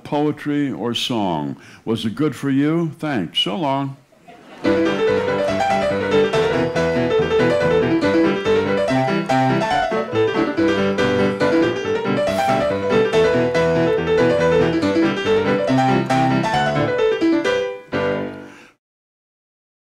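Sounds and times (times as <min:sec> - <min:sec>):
solo piano music: 0:04.6 - 0:18.5.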